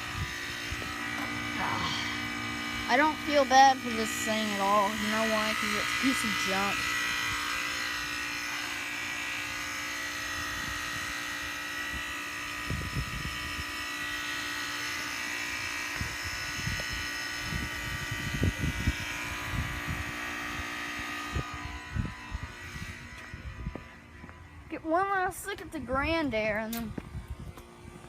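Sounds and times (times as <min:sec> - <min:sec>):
heat pump fan and compressor hum: 0:00.0 - 0:28.0
high steady whine: 0:00.0 - 0:28.0.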